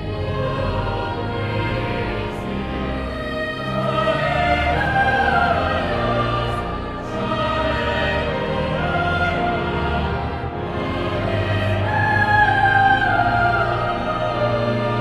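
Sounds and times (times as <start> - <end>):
choir singing held notes: 0.0 - 15.0
musical accompaniment: 0.0 - 15.0.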